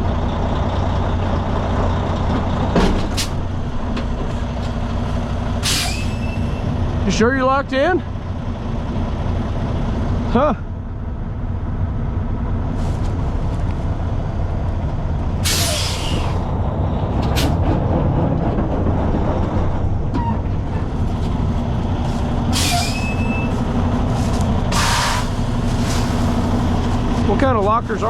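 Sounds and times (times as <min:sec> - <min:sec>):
diesel truck engine running: 0:00.0 - 0:28.0
air brake hiss: 0:05.6 - 0:06.6, 0:15.4 - 0:16.4, 0:22.5 - 0:23.5, 0:24.7 - 0:26.6.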